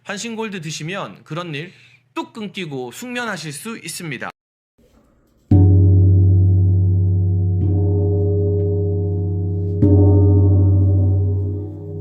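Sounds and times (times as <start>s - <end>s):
deep gong struck: 5.5s - 12.0s.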